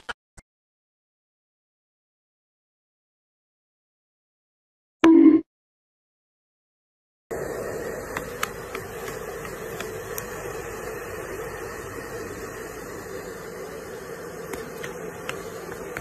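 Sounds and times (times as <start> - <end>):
hair dryer blowing: 7.3 - 16.0.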